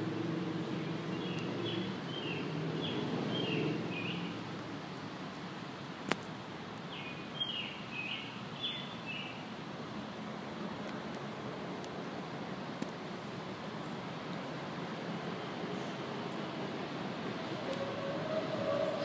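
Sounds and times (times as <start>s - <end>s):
small birds chirping: 0.8s - 4.4s, 6.9s - 9.4s.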